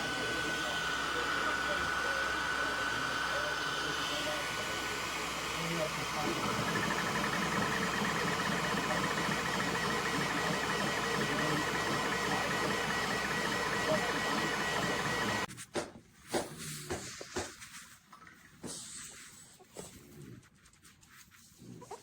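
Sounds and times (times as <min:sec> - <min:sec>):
printer fans running: 0:00.0 - 0:15.5
print head chirping: 0:06.2 - 0:15.5.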